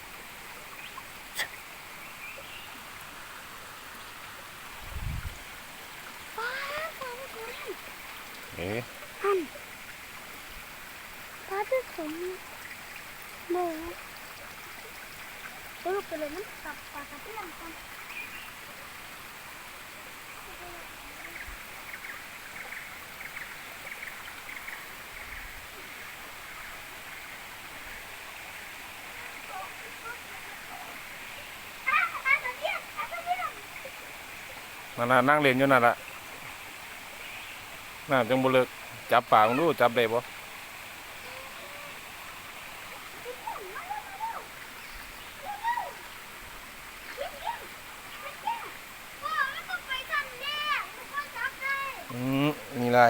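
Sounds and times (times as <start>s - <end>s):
waterfall rushing: 0.0s - 21.8s, 25.9s - 53.0s.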